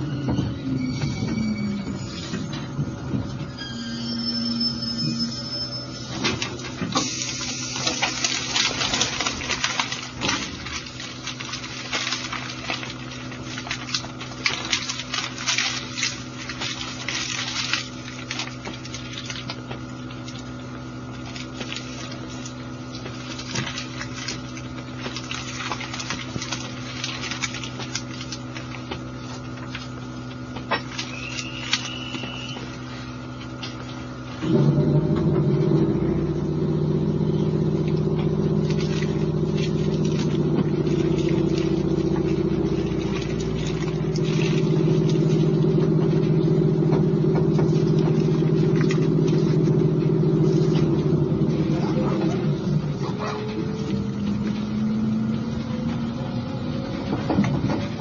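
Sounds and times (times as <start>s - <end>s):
low rumble of train pulling away: 0.0s - 8.3s, 34.4s - 58.0s
train equipment hum: 0.0s - 58.0s
crackling and hiss: 6.7s - 33.8s.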